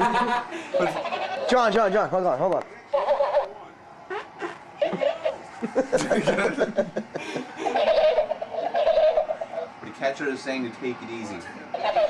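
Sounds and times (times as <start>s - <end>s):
people laughing and snickering: 0.0s - 1.4s, 4.1s - 9.8s.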